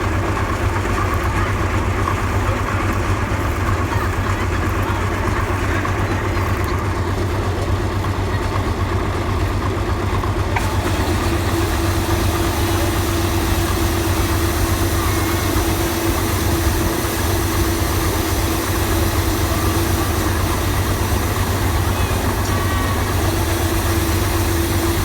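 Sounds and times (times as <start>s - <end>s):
combine harvester engine drone: 0.0s - 25.0s
steady whine: 10.5s - 25.0s.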